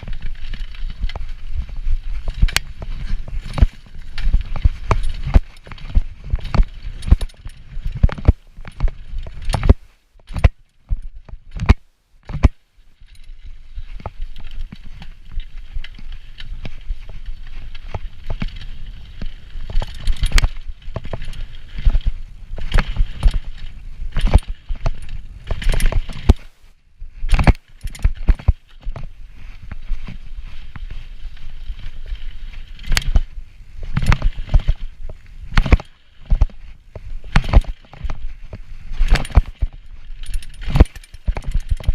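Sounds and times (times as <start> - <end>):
mountain bike rattling over trail: 0.0 - 41.9.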